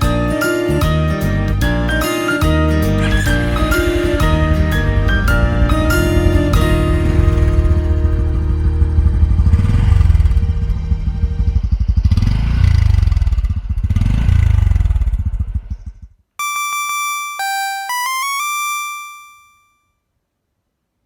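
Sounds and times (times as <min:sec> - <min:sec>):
motorcycle engine running: 0:03.0 - 0:16.2
stepped electronic tones: 0:16.4 - 0:19.7
short high electronic beeps: 0:16.4 - 0:19.8.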